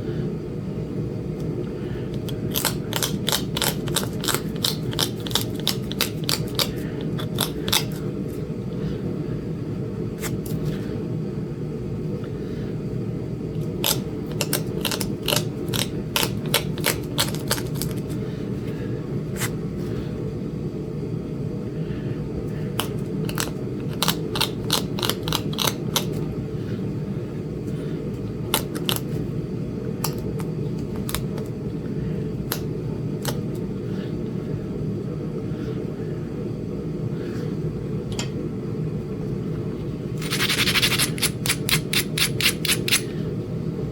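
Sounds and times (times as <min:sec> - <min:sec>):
stone tool tapping flint clicks: 0:40.2 - 0:43.1.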